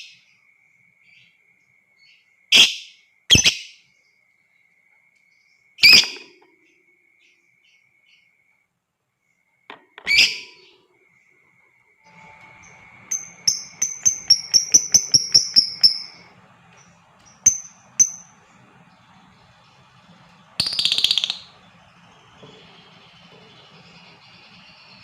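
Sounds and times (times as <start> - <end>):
lovebirds chirping: 10.0 - 11.4, 12.1 - 25.0
lovebirds chattering: 12.1 - 25.0.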